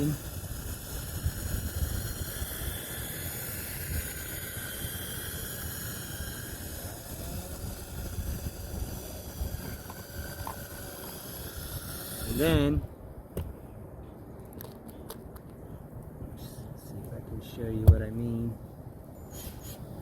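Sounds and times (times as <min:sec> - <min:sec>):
drill motor whine: 0:00.0 - 0:12.7.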